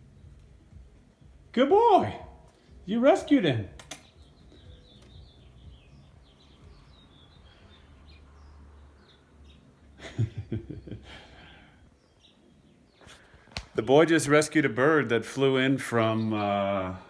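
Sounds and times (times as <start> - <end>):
small bird chirping: 3.8 - 10.0, 11.9 - 13.5.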